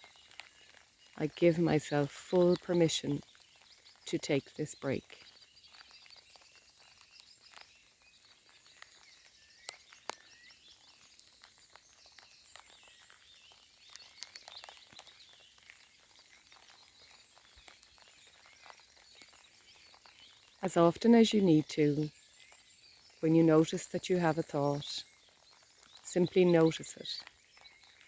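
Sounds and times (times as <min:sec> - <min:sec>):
raindrop ticks: 0:00.0 - 0:28.0
small birds chirping: 0:00.0 - 0:28.0
soft rain: 0:00.0 - 0:28.0.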